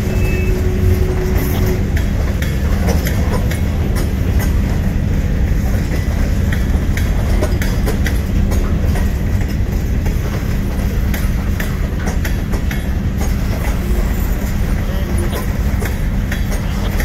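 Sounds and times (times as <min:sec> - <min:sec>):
wheels squeaking: 0:00.0 - 0:04.0, 0:13.2 - 0:17.0
train wheels rumbling on rail: 0:00.0 - 0:17.0.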